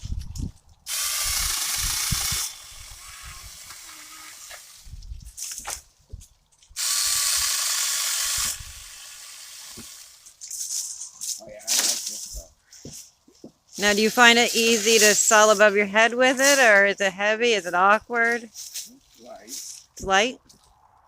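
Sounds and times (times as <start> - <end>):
chainsaw cutting wood: 0.9 - 5.0, 6.8 - 10.4, 13.8 - 17.0.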